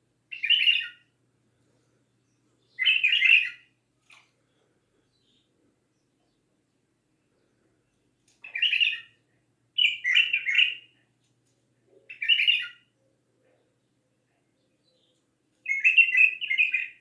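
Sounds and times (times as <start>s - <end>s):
bird singing whistled notes: 0.3s - 1.1s, 12.1s - 12.8s, 15.7s - 17.0s.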